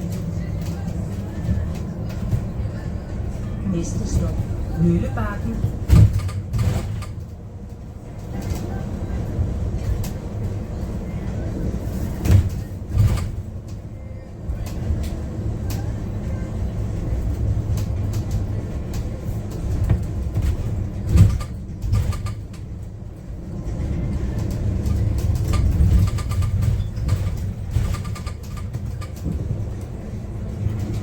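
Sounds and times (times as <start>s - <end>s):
low rumble of bus running: 0.0s - 31.0s
cabin clicks and rattles: 17.8s - 22.8s, 24.2s - 31.0s.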